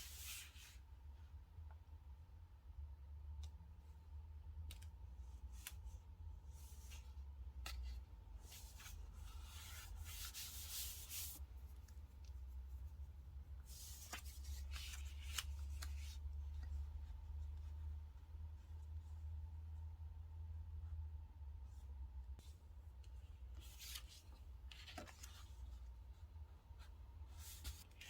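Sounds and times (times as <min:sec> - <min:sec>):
paper rustling and rubbing: 0:06.6 - 0:17.5, 0:23.5 - 0:28.0.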